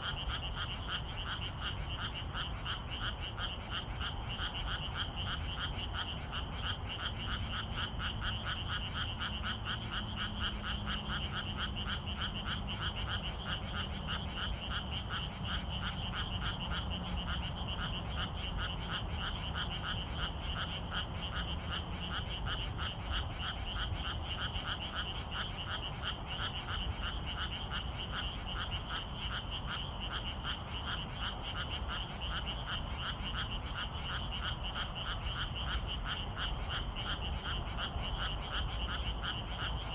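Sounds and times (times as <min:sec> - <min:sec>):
frogs calling in pulsing rhythm: 0:00.0 - 0:39.9.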